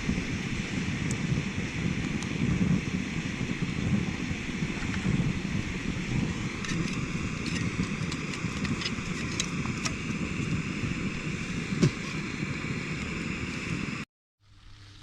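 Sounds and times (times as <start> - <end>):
wind on microphone: 0.0 - 14.0
campfire crackling: 0.0 - 15.0
sharp fire pops: 0.1 - 12.3.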